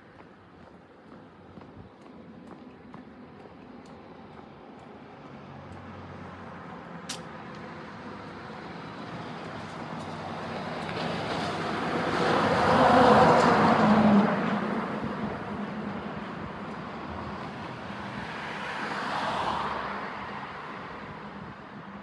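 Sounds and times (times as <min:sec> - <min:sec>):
sharp click: 0:07.1 - 0:07.3.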